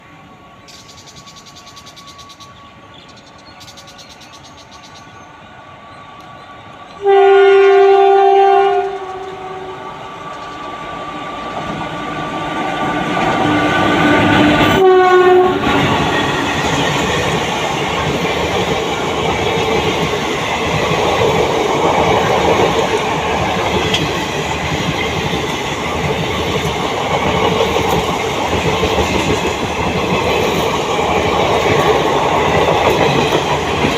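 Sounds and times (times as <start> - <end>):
train rumble: 0.0 - 33.9
locomotive horn blasts: 7.0 - 9.8, 14.4 - 15.7.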